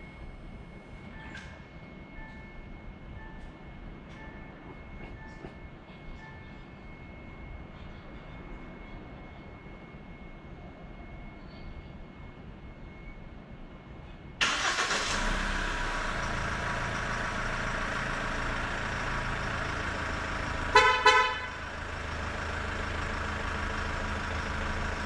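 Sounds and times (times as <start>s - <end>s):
diesel engine starting and idling: 14.4s - 25.0s
car horn beeps: 20.6s - 21.6s.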